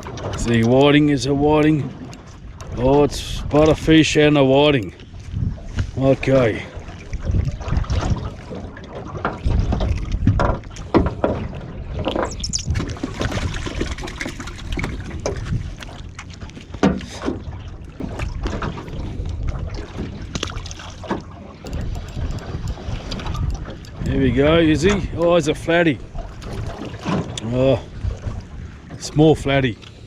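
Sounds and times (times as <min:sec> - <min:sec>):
wind buffeting microphone: 0:00.0 - 0:16.5, 0:17.2 - 0:29.7
water lapping against hull: 0:00.0 - 0:30.0
fishing gear knocking and clicking: 0:20.3 - 0:25.3.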